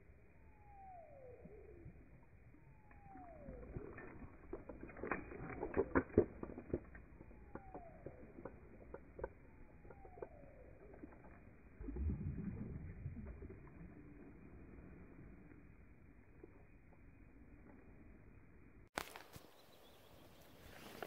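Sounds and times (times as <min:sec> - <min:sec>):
bird whistled call: 0:00.4 - 0:01.9, 0:02.6 - 0:03.7
fishing rod and reel clicking: 0:02.6 - 0:11.6.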